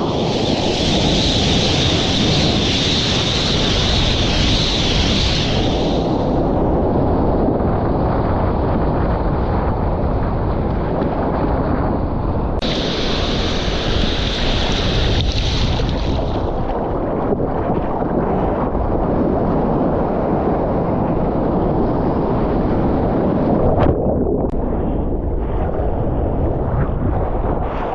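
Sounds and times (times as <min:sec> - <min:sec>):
bright hiss: 0:00.0 - 0:06.4, 0:12.6 - 0:16.4
lake surf: 0:00.0 - 0:07.4, 0:12.4 - 0:24.6
wind buffeting microphone: 0:00.0 - 0:27.9.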